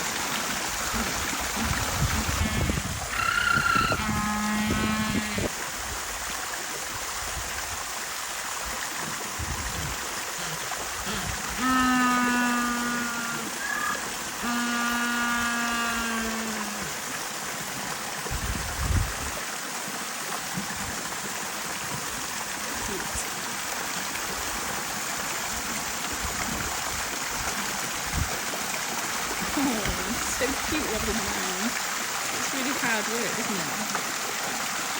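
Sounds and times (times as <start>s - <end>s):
running water: 0.0s - 34.9s
penguins calling: 2.2s - 5.5s.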